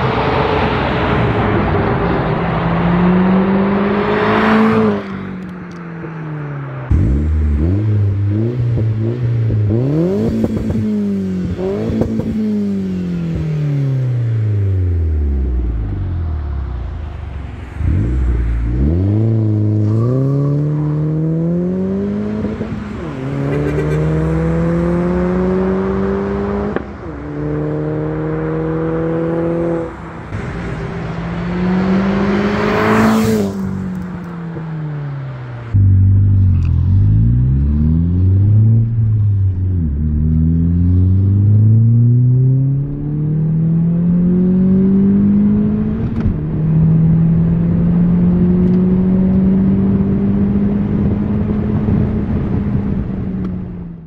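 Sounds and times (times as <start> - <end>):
car engine revving: 0.0 - 54.0
car passing close by: 11.4 - 35.7
car accelerating through gears: 17.7 - 30.0, 31.0 - 34.5, 39.8 - 53.6.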